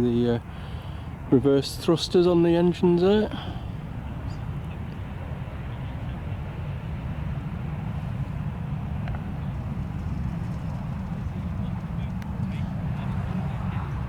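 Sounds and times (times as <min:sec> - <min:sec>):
jet engines in reverse thrust: 0:03.3 - 0:14.0.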